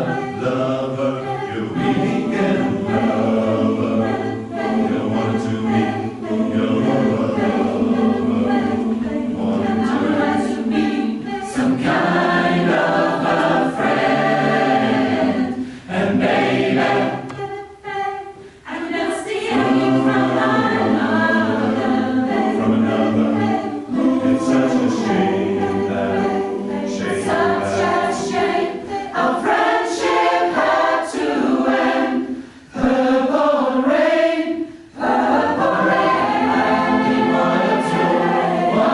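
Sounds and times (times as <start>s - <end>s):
choir singing: 0.0s - 38.9s
singers breathing: 15.5s - 16.0s, 18.3s - 18.7s, 32.2s - 32.8s, 34.6s - 35.0s.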